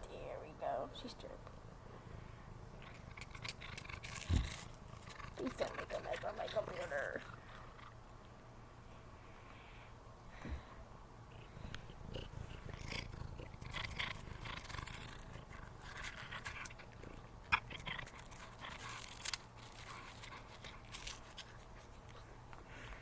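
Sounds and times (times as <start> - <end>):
cat purring: 2.0 - 8.0, 10.4 - 19.2
cat crunching a treat: 2.7 - 8.0, 11.7 - 22.6.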